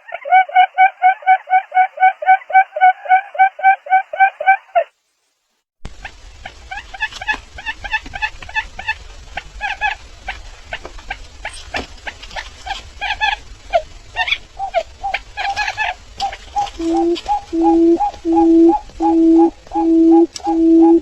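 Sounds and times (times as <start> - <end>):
bird calling rapid short notes: 6.0 - 21.0.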